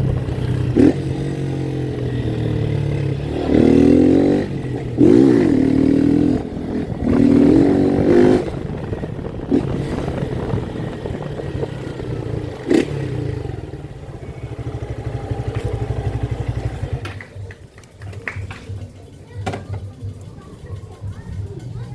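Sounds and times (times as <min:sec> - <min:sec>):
motorcycle engine revving: 0:00.0 - 0:17.3.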